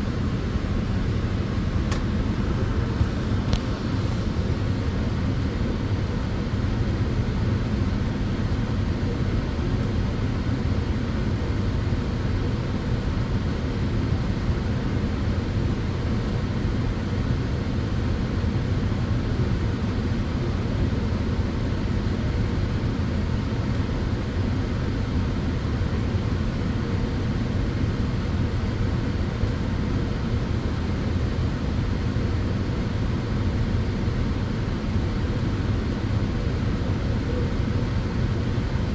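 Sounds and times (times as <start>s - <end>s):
tanning bed fans droning: 16.5s - 38.9s.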